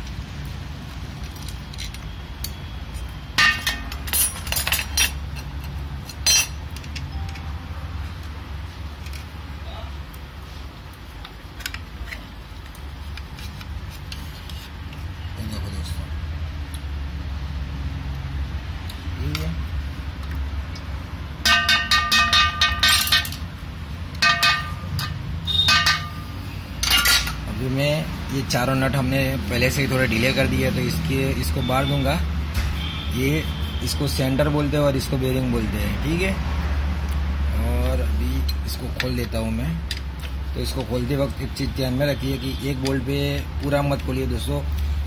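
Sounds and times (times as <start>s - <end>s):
metal tools clinking: 1.2s - 7.5s, 21.4s - 23.5s, 24.2s - 27.5s
ringing metallic tone: 24.2s - 27.2s.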